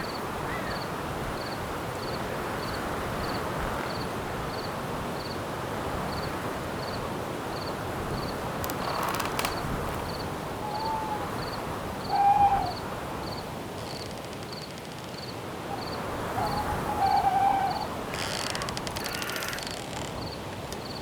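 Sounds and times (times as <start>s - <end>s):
cricket chirping: 0.0s - 5.4s, 6.1s - 21.0s
wind hiss: 0.1s - 21.0s
insect trill: 7.6s - 21.0s
owl hooting: 10.5s - 13.0s, 15.7s - 18.0s.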